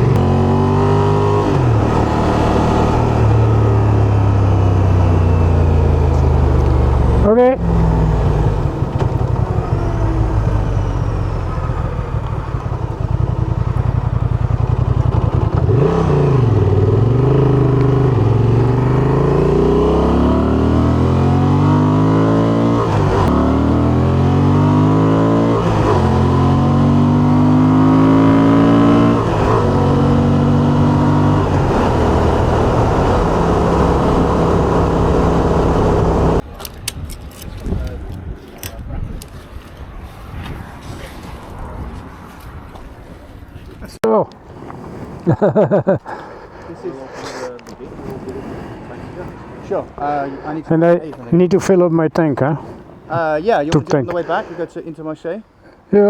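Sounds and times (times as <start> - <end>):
van engine accelerating: 0.0 - 36.4.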